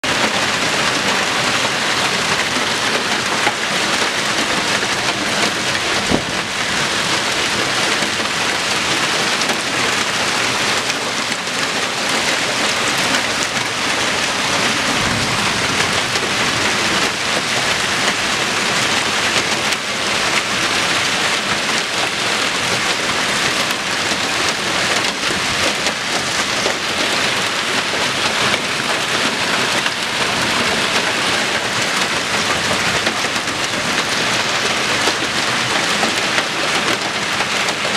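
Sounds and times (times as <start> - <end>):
heavy rain pouring: 0.0 - 37.9
sharp thunder crack: 14.9 - 16.6.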